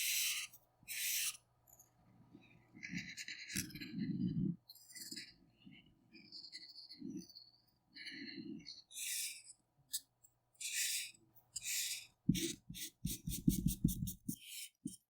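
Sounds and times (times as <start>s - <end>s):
pencil scratching on paper: 0.0s - 1.4s, 8.7s - 15.0s
pencil tapping paper and desk: 10.6s - 15.0s.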